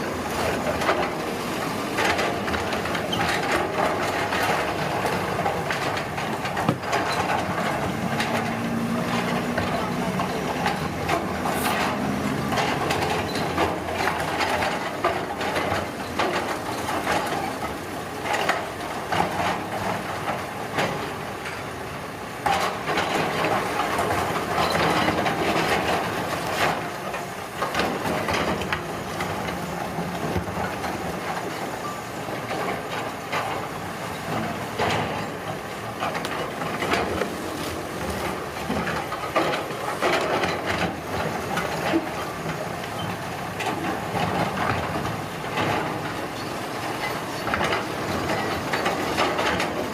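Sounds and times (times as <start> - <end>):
engine running: 0.0 - 15.7
scraping and crushing clatter: 0.0 - 21.7, 22.4 - 49.9.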